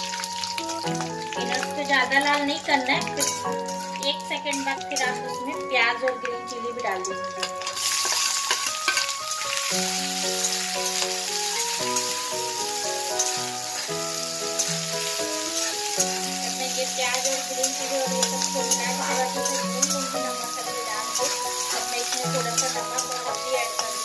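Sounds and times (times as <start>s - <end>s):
background music: 0.0s - 24.0s
onions sizzling in hot oil: 0.0s - 24.0s
spatula stirring: 10.4s - 24.0s.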